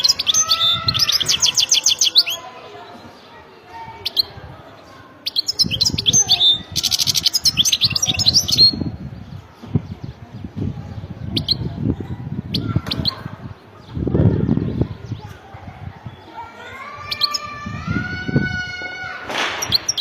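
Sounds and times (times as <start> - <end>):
finch twittering song: 0.0 - 3.2, 4.0 - 11.8.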